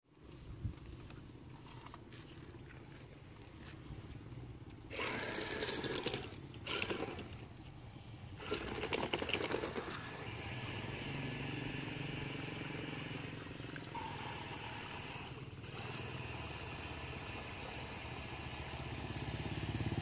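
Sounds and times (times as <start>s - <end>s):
electric gear motors whirring: 4.8s - 7.7s, 8.4s - 19.4s.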